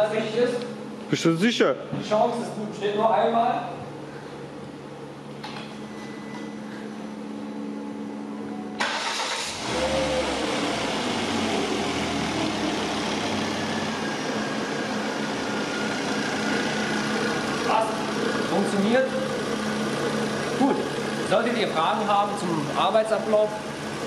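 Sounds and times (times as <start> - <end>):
car engine starting and idling: 8.7 - 24.0.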